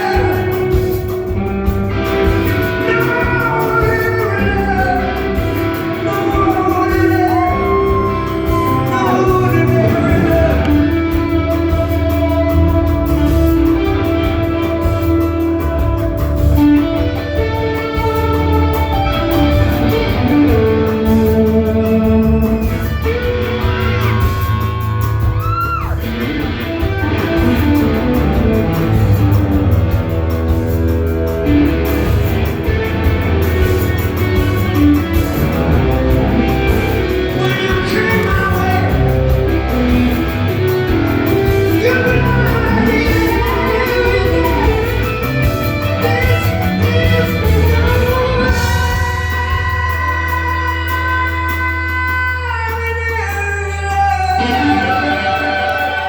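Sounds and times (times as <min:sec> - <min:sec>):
person singing: 0:00.0 - 0:01.4, 0:02.4 - 0:15.4, 0:35.0 - 0:56.0
rock band playing: 0:00.0 - 0:56.0.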